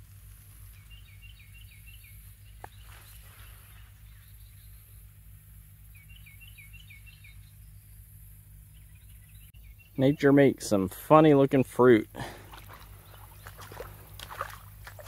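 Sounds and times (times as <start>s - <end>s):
songbird singing: 0.0s - 15.0s
steady low rumble: 0.0s - 15.0s.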